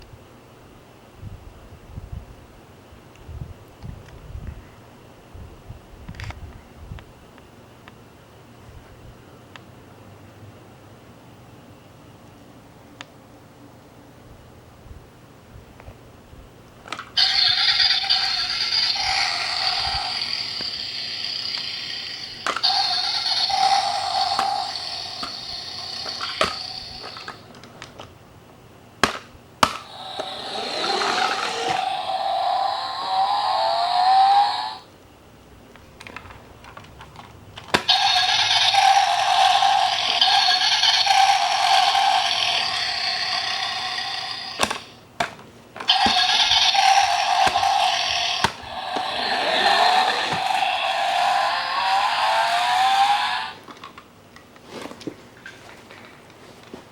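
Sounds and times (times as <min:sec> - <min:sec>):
toy car engine sounds from speaker: 0:17.1 - 0:27.5, 0:29.6 - 0:34.9, 0:37.6 - 0:45.0, 0:45.8 - 0:53.7
sharp clicks: 0:17.2 - 0:27.4, 0:37.6 - 0:45.0.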